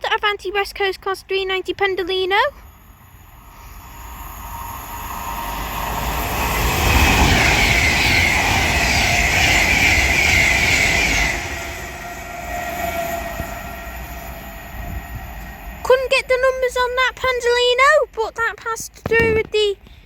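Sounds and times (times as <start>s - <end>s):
train rushing past: 2.2s - 18.1s.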